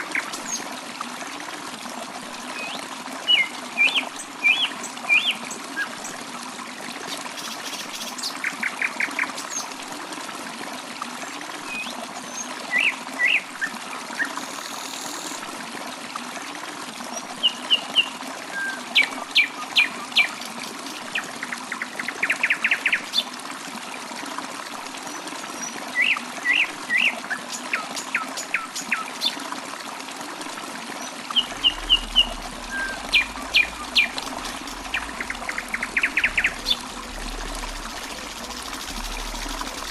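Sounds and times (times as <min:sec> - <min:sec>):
water trickling: 0:00.0 - 0:39.9
birds chirping: 0:31.3 - 0:39.9.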